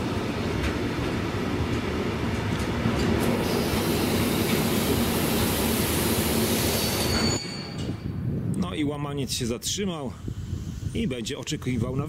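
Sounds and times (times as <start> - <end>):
train wheels rumbling on rails: 0.0 - 8.6
train brake squeal: 3.4 - 8.1.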